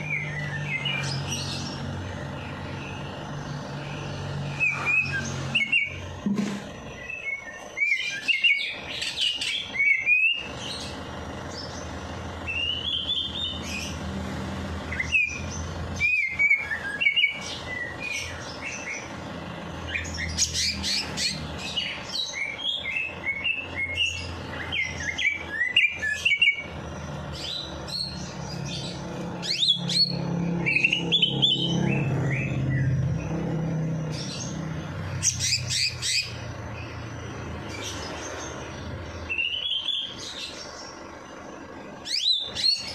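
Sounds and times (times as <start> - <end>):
songbird chirping: 0.0 - 42.9.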